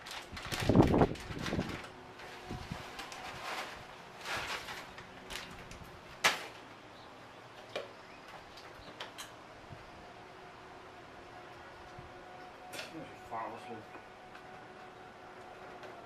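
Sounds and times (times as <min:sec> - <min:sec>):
rustling: 0:00.0 - 0:06.7.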